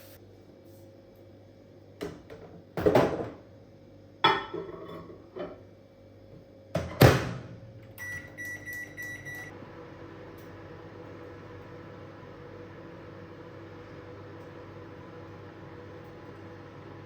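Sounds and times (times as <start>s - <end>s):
microwave keypad beeps: 8.0s - 9.5s.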